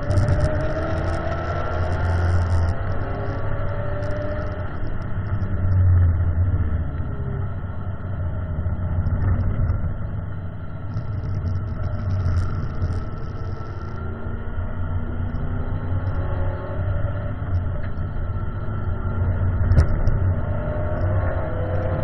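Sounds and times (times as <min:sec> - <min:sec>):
car engine running hard: 0:00.0 - 0:22.0
wind and road noise: 0:00.0 - 0:22.0.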